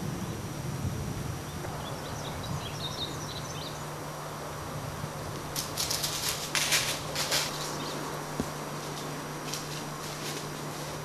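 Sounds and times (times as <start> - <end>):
steady low hum: 0.0 - 11.0
small birds chirping: 1.3 - 4.4, 5.6 - 11.0
harsh rustling bursts: 5.5 - 11.0.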